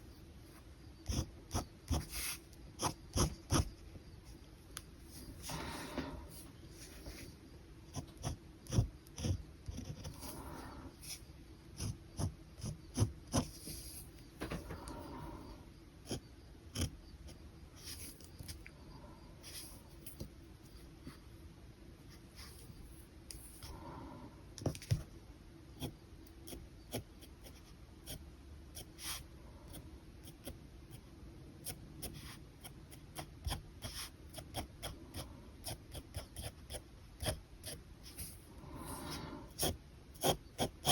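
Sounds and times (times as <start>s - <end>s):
pen scratching on paper: 1.0s - 3.8s, 5.4s - 14.2s, 14.8s - 18.3s, 25.8s - 40.9s
soft breathing: 5.1s - 7.4s, 10.0s - 11.3s, 13.5s - 15.8s, 22.2s - 24.6s, 38.0s - 39.6s.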